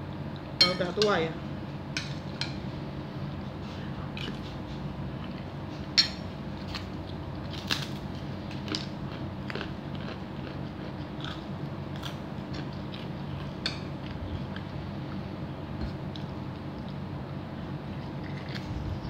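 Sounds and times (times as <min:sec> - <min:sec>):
person chewing food: 0:03.8 - 0:06.0, 0:06.6 - 0:19.0.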